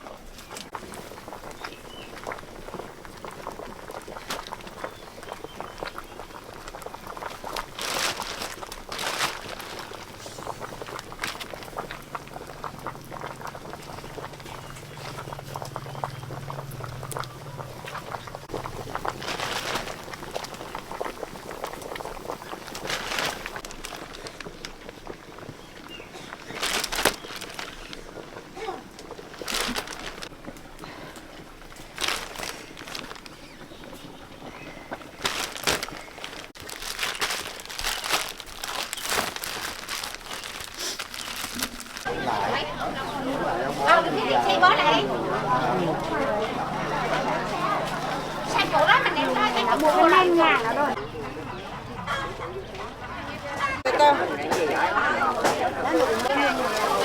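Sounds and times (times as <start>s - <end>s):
crinkling and rustling: 0.0s - 42.2s, 55.4s - 57.0s
pot boiling and bubbling: 0.0s - 53.3s, 54.2s - 57.0s.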